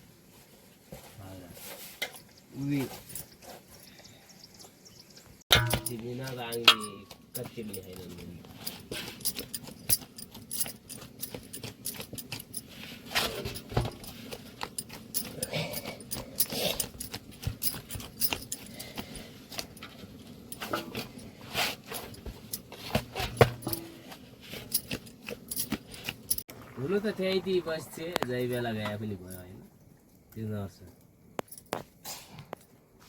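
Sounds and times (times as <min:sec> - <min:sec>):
clicks and clinks: 0:05.5 - 0:12.7.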